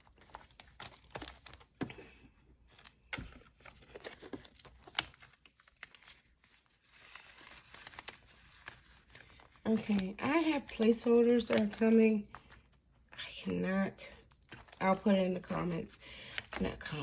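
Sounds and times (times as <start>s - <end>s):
paper bills rustling: 2.7s - 12.8s, 14.5s - 17.0s.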